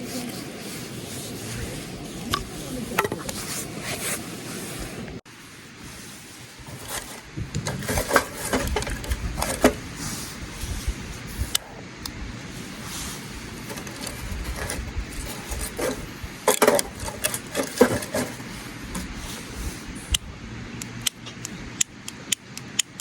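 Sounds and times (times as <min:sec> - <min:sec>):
knife scraping wood: 0:13.6 - 0:19.6.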